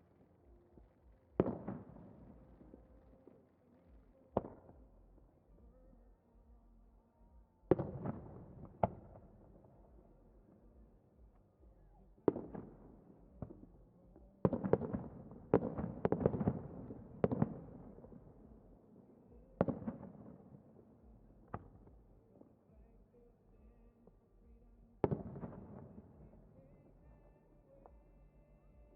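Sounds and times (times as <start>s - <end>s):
fireworks bangs with rumble: 0.8s - 2.8s, 7.7s - 9.6s, 12.2s - 13.7s, 14.4s - 18.5s, 19.6s - 20.5s, 25.0s - 26.4s.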